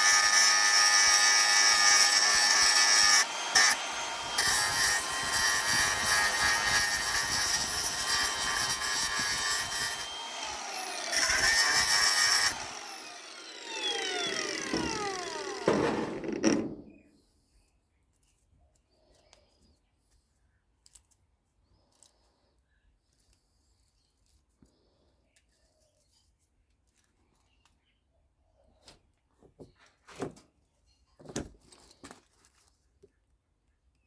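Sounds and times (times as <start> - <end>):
power tool running: 0.0 - 17.0
power tool winding down whine: 0.0 - 17.0.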